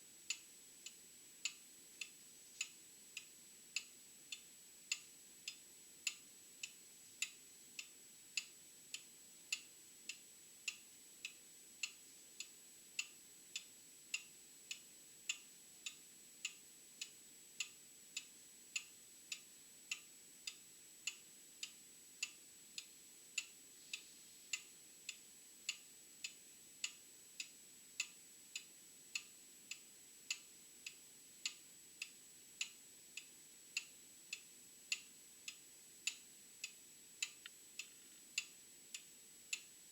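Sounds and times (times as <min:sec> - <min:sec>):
mechanical clock ticking: 0:03.2 - 0:23.5.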